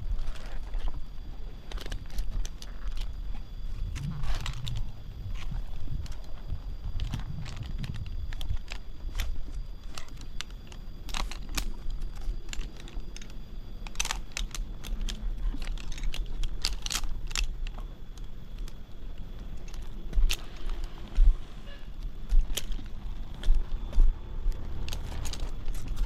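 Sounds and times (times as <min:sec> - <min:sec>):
steady low rumble: 0:00.0 - 0:26.0
clicks cracks and rattles: 0:07.0 - 0:18.8.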